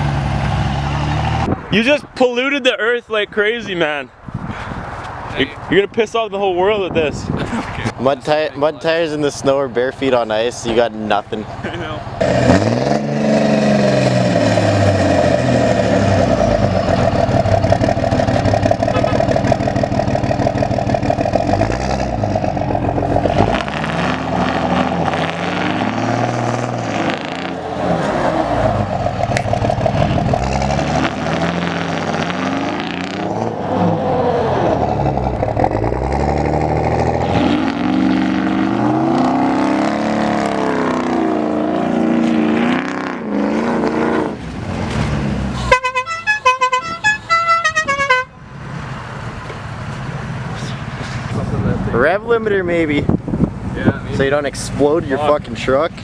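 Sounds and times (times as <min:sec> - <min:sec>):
pickup truck engine revving: 0:00.0 - 0:01.5, 0:11.6 - 0:47.0.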